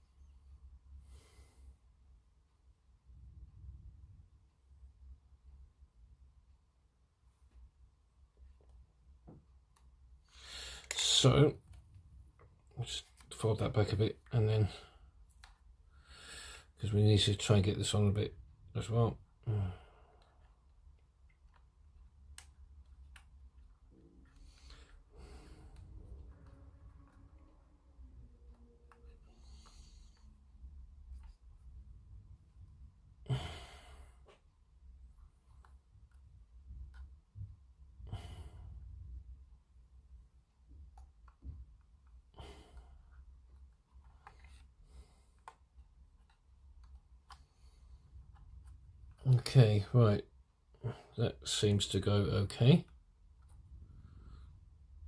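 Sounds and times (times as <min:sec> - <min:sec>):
low room hum: 0:00.0 - 0:55.0
faint plastic clicks: 0:20.1 - 0:31.7, 0:40.7 - 0:49.5.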